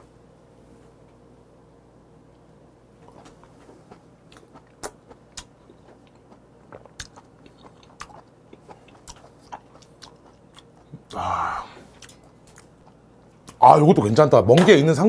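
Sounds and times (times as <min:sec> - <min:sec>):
wet chewing: 0:03.0 - 0:11.2, 0:11.8 - 0:13.6.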